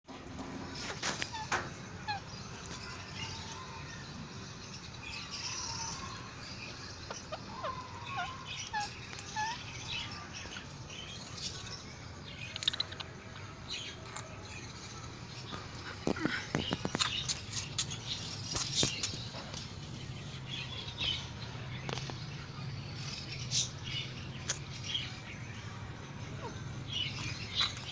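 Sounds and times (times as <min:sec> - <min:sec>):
parakeet chirping: 0:05.3 - 0:11.7, 0:23.1 - 0:27.9.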